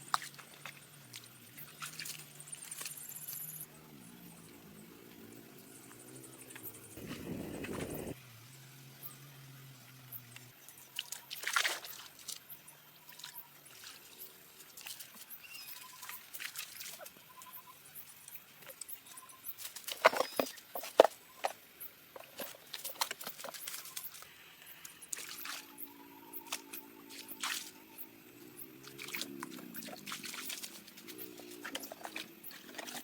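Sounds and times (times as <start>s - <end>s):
water splashing and dripping: 0.0s - 3.4s, 10.8s - 17.3s, 22.2s - 33.0s.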